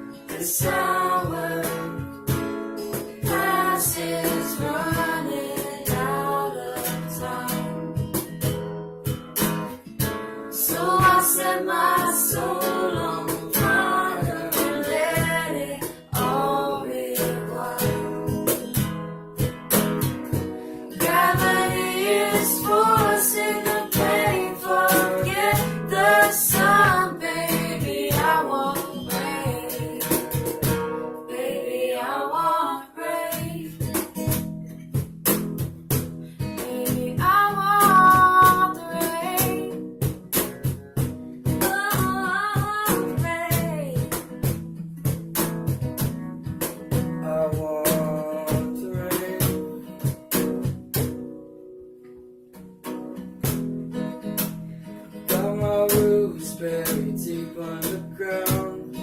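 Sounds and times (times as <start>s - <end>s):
acoustic guitar: 0.0s - 59.0s
person singing: 0.3s - 2.0s, 3.2s - 7.8s, 10.6s - 18.6s, 21.0s - 30.3s, 31.3s - 33.8s, 36.6s - 39.7s, 47.2s - 49.8s, 55.3s - 59.0s.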